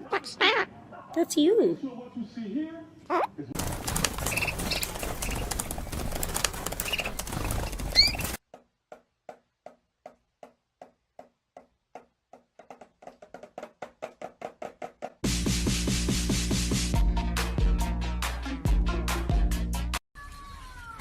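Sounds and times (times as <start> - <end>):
evenly spaced clicks: 3.6 - 8.4.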